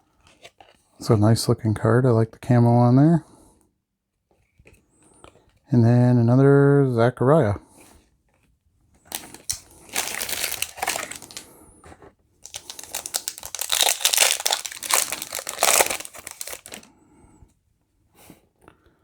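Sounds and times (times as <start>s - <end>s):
wrapper crinkling: 9.1s - 11.5s, 12.4s - 16.9s.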